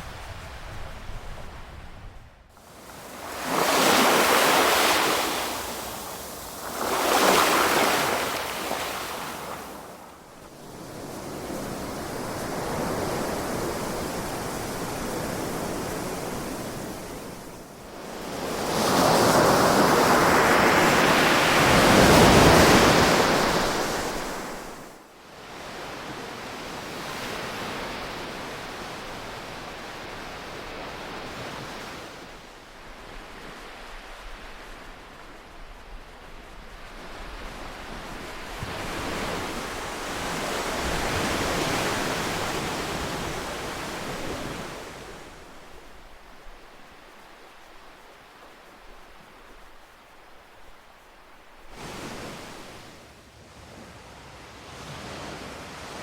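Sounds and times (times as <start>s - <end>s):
ocean waves breaking: 2.6s - 17.4s.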